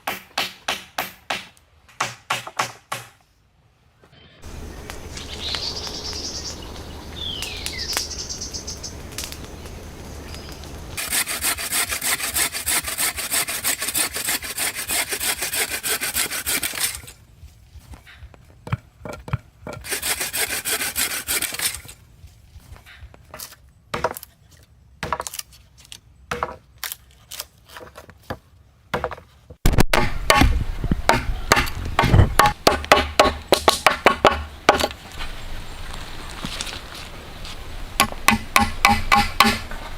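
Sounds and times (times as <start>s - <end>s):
saw cutting wood: 11.0s - 17.1s, 19.7s - 22.0s.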